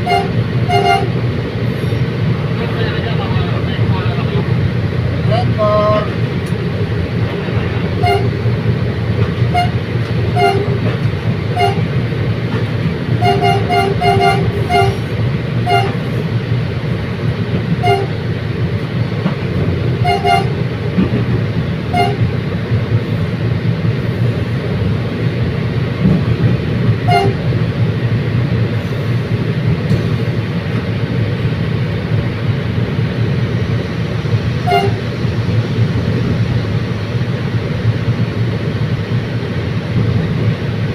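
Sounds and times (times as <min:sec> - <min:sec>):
train horn toots: 0:00.0 - 0:01.2, 0:05.3 - 0:06.2, 0:07.9 - 0:08.4, 0:09.5 - 0:10.9, 0:11.5 - 0:11.9, 0:13.2 - 0:16.2, 0:17.8 - 0:18.2, 0:20.0 - 0:20.6, 0:21.9 - 0:22.3, 0:27.0 - 0:27.5, 0:34.6 - 0:35.1
train rumbling: 0:00.0 - 0:40.9.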